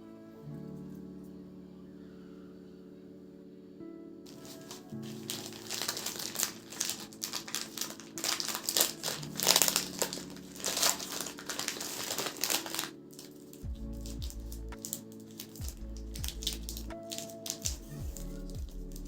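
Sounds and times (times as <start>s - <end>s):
packaging crinkling by hand: 4.3s - 19.0s.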